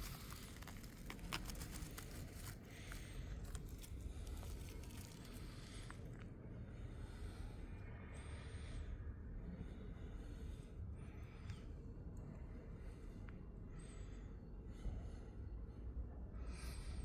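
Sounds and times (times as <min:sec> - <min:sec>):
rustling and crackling: 0:00.0 - 0:06.2.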